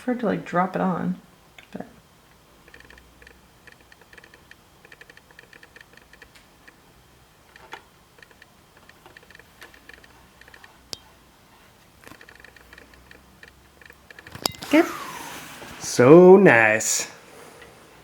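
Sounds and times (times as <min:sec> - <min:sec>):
small metallic clicks: 0:02.7 - 0:06.8, 0:07.5 - 0:11.1, 0:12.0 - 0:14.6.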